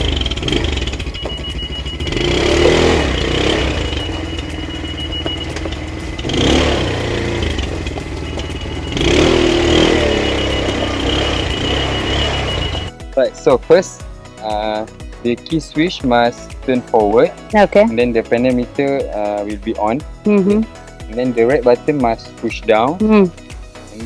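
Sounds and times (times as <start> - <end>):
atv engine revving: 0.0 - 12.9.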